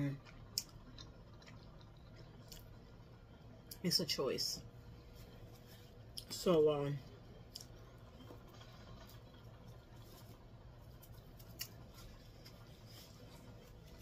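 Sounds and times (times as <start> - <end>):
faint chewing with soft crunches: 0.0 - 3.9, 4.6 - 14.0.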